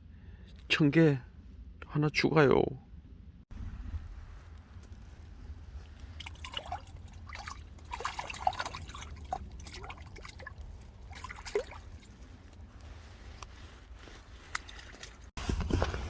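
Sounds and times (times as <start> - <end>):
water dripping and trickling: 4.0 - 15.3.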